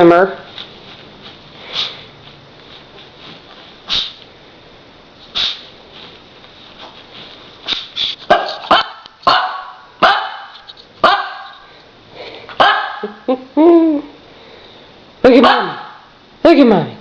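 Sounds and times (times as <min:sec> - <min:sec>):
puppy barking: 0:08.3 - 0:11.6, 0:12.6 - 0:13.2, 0:15.3 - 0:16.1.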